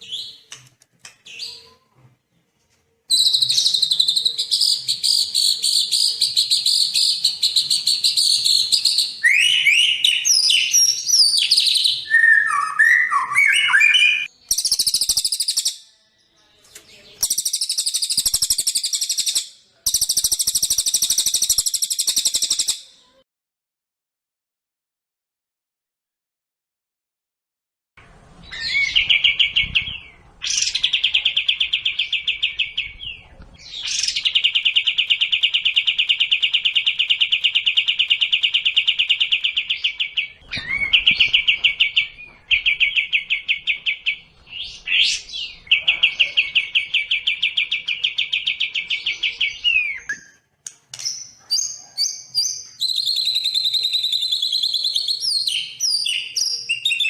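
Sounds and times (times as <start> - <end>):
bird high whistles and chirps: 3.1 - 15.9, 17.2 - 22.9, 33.7 - 43.4, 51.0 - 57.0.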